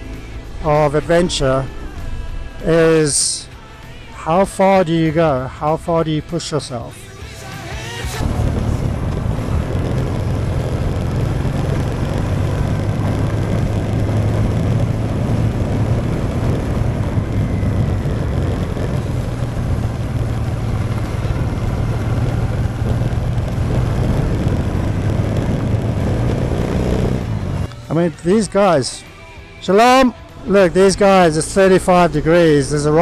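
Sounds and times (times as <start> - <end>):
motorcycle engine running: 7.7 - 28.6
wind rush: 8.2 - 27.7.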